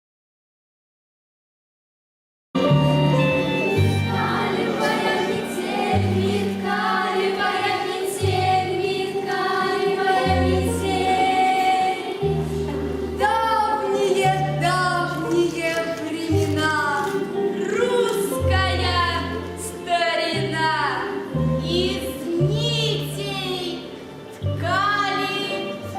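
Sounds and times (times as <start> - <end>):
low bass notes: 2.6 - 4.7
choir singing: 2.6 - 15.3, 17.1 - 19.3, 24.6 - 25.9
instrumental accompaniment: 2.6 - 25.9.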